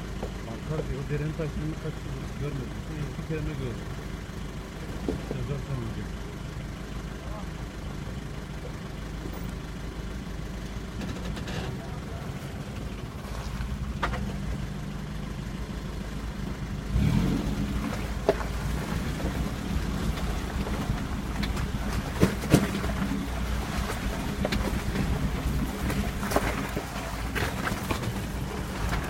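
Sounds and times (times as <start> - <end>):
off-road vehicle engine running: 0.0 - 29.0
sharp knocks and clunks: 20.1 - 23.4.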